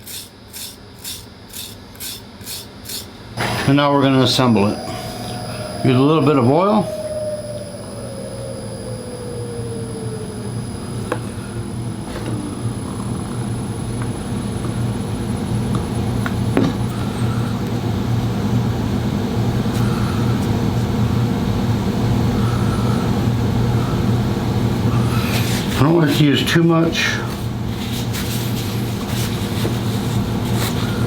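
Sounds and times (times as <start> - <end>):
tone sliding down in pitch: 3.4 - 14.5
motor humming: 3.4 - 17.4.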